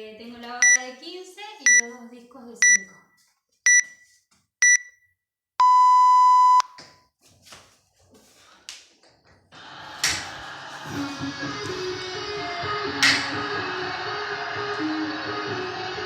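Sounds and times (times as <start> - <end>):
short high beeps: 1.7 - 2.0, 2.6 - 3.0, 3.7 - 4.0, 4.6 - 5.0, 5.6 - 6.7
music: 9.6 - 16.0.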